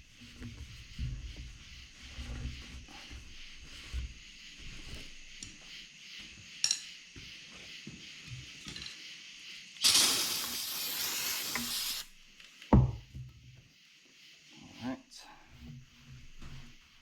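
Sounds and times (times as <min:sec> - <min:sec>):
aerosol spray hissing: 0:09.5 - 0:12.3.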